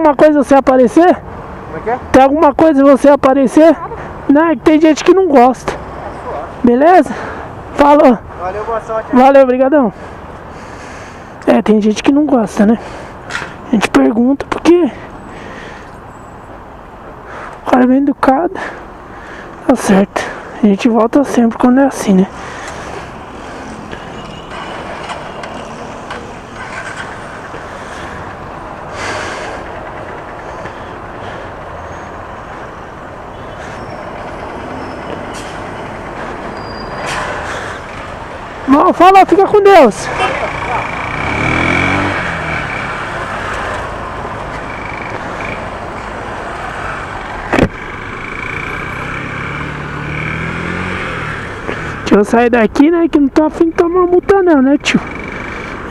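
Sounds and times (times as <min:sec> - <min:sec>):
street traffic noise: 0:00.0 - 0:55.9
vehicle passing: 0:18.5 - 0:55.9
motorcycle engine revving: 0:40.0 - 0:52.1, 0:54.9 - 0:55.9.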